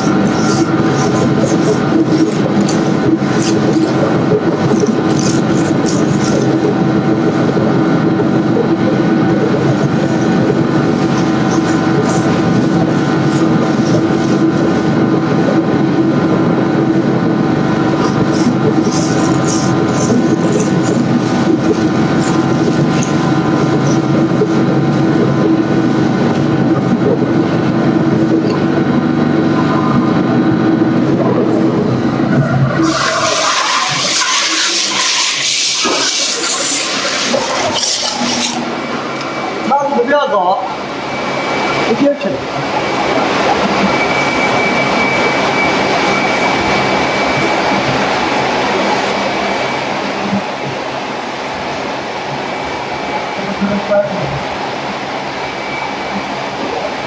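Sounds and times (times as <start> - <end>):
machine humming and rattling: 0.0 - 57.0.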